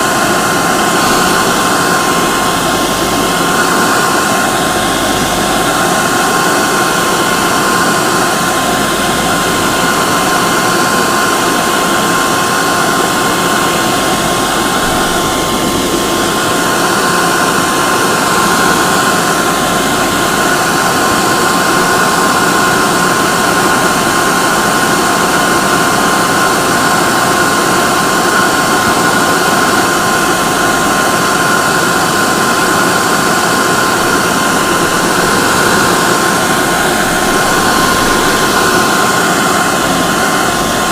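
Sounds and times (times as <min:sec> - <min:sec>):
hair dryer blowing air: 0:00.0 - 0:40.9
hair dryer motor whine: 0:00.0 - 0:40.9.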